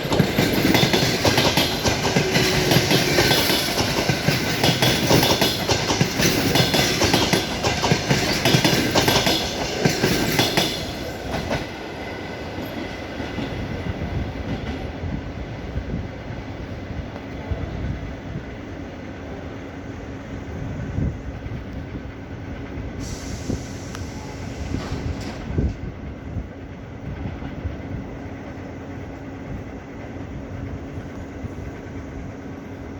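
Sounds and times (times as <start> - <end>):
train wheels clacking on rails: 0.0 - 15.4, 22.6 - 31.9.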